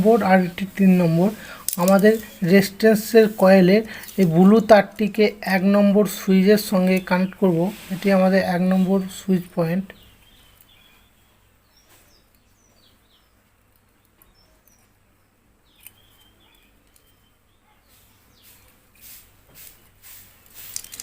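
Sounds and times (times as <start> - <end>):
clicks and rustles of wires: 1.6 - 4.3, 15.7 - 17.1, 20.4 - 21.0
faint bird chirps: 9.9 - 19.2.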